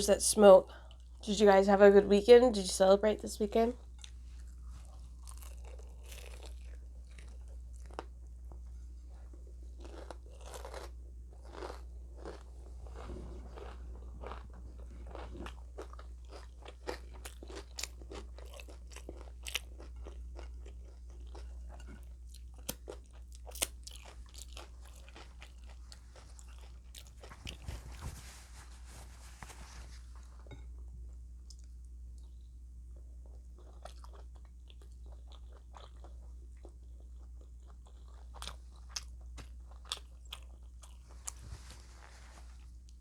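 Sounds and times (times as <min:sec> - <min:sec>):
steady low hum: 0:00.0 - 0:43.0
crisp crunching and chewing: 0:04.0 - 0:08.6, 0:09.2 - 0:28.0.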